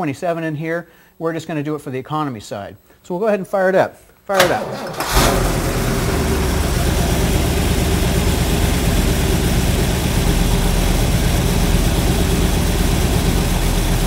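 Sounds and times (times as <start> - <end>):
car engine idling: 4.6 - 14.0.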